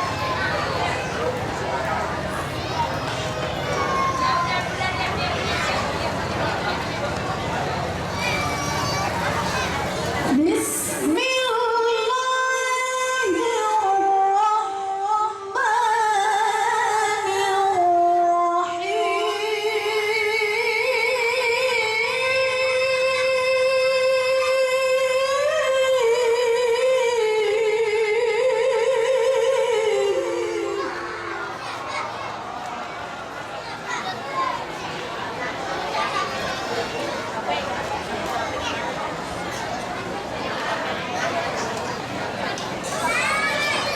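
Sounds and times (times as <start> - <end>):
woman reciting melodically: 10.3 - 31.6.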